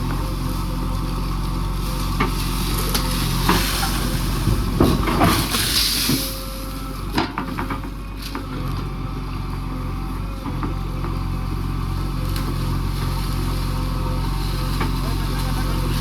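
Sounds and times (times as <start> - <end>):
rattling and rushing noise: 0.0 - 8.6
diesel engine running: 0.0 - 16.0.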